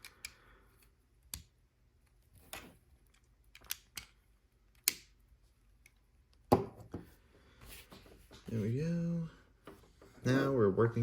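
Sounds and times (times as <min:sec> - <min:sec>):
plastic bricks clicking together: 0:02.5 - 0:04.2.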